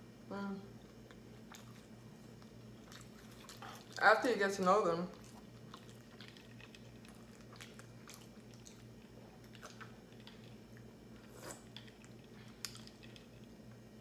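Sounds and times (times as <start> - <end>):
faint steady hum: 0.0 - 14.0
mouth chewing food: 0.8 - 4.3, 5.1 - 13.8.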